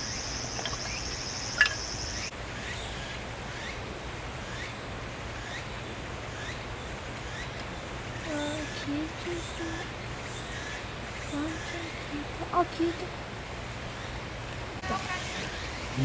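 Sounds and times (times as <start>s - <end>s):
faint short insect chirps: 0.0s - 2.3s
insects trilling: 0.0s - 2.3s.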